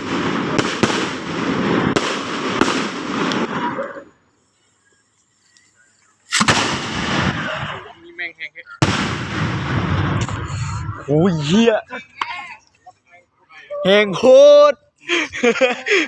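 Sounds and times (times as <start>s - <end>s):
fireworks bangs and crackle: 0.0s - 4.1s, 6.3s - 8.0s, 8.8s - 11.6s.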